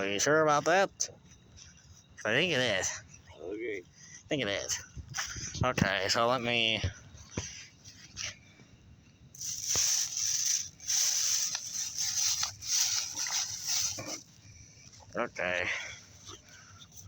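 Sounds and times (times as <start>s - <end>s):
firework hissing and sputtering: 9.4s - 14.4s.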